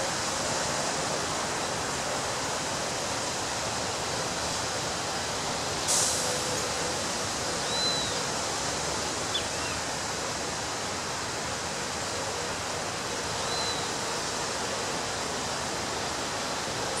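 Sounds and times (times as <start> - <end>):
ocean waves breaking on beach: 0.0 - 17.0.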